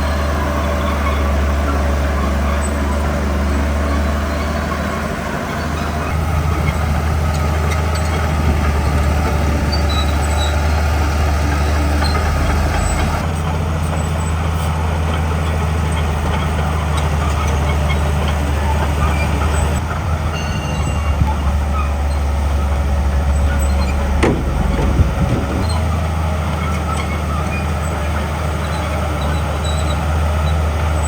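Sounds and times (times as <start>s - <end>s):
heavy diesel engine under load: 0.0s - 31.0s.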